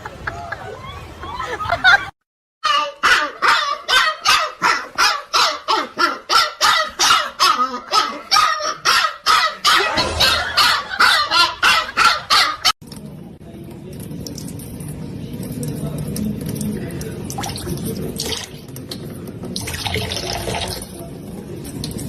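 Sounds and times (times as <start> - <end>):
dog barking: 2.7 - 12.7.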